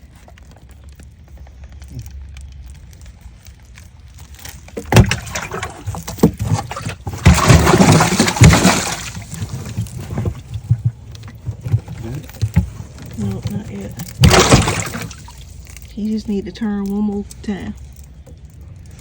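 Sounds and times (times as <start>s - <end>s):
water splashing: 4.8s - 11.5s, 12.2s - 15.9s.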